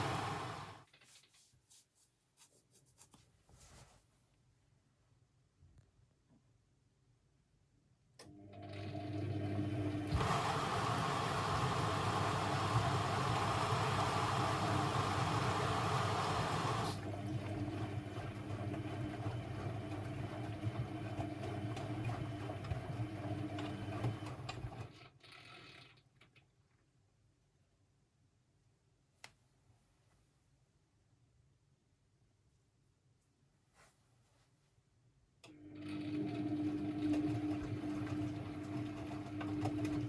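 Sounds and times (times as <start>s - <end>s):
washing machine motor humming: 0.0s - 0.8s, 8.2s - 25.0s, 35.5s - 40.0s.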